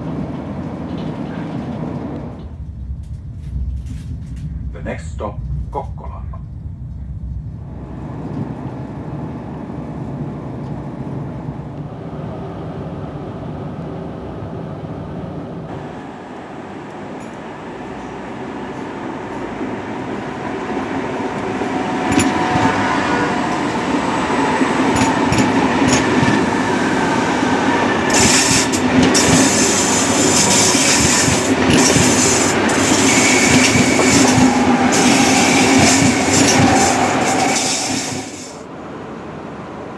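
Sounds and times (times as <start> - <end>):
train rumbling on rails: 0.0 - 39.9
wheels clattering over track: 28.0 - 38.6.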